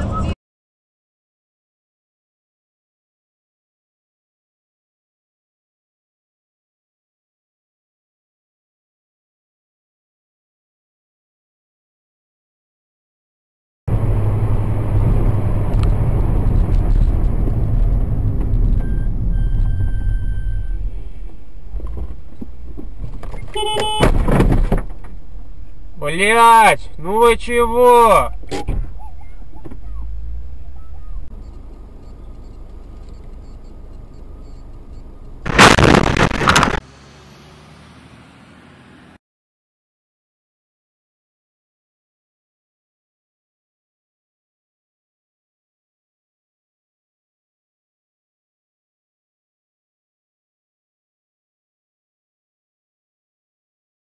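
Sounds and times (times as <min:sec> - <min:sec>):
car engine and road noise: 0:00.0 - 0:00.4, 0:13.9 - 0:39.2
car crash impact: 0:23.8 - 0:25.2, 0:35.5 - 0:36.8
faint high tone: 0:28.3 - 0:32.3.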